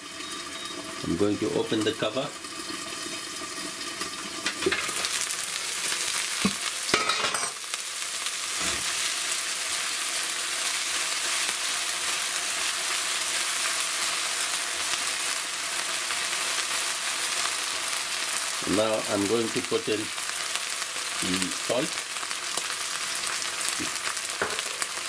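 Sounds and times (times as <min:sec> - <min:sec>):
onions sizzling in oil: 0:00.0 - 0:25.0
pan lid and spoon knocks: 0:24.4 - 0:24.8.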